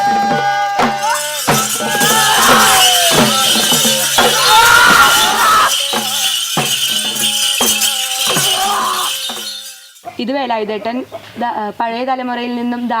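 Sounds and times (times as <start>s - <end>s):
drum strokes: 0.0s - 10.0s
person singing: 0.0s - 10.0s
jingling rattle: 0.9s - 10.7s.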